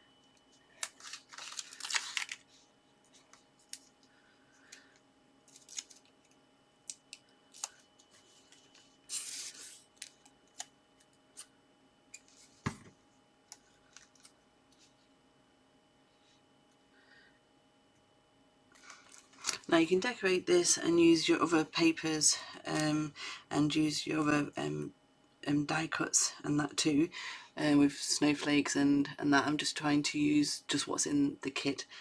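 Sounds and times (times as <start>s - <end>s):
paper rustling: 0.8s - 4.0s, 5.5s - 6.1s.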